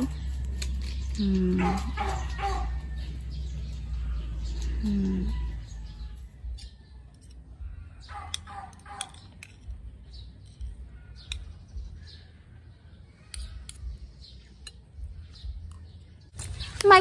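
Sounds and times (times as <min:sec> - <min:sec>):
cutlery scraping a plate: 0:06.5 - 0:07.6, 0:08.3 - 0:11.6.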